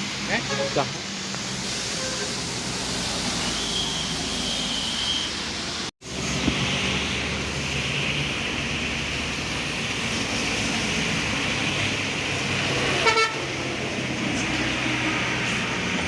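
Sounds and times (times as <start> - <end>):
bus horn toot: 2.0 - 2.4, 13.0 - 13.5
bus diesel engine running: 4.2 - 16.0.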